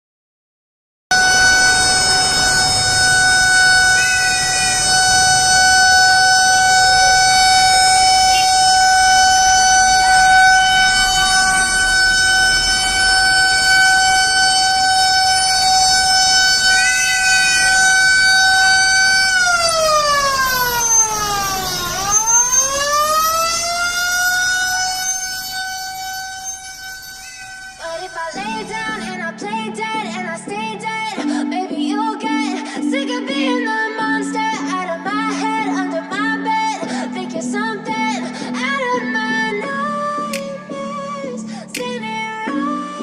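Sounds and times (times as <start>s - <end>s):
fire truck siren: 1.1s - 29.2s.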